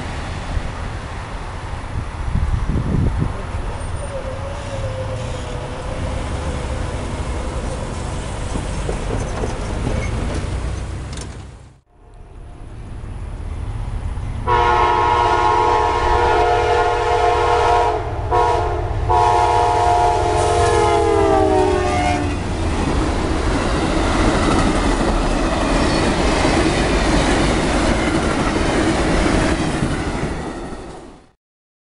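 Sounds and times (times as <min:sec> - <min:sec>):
train rumbling: 0:00.0 - 0:31.4
train wheels clattering: 0:07.6 - 0:11.6
train horn: 0:11.9 - 0:12.8, 0:14.4 - 0:22.4.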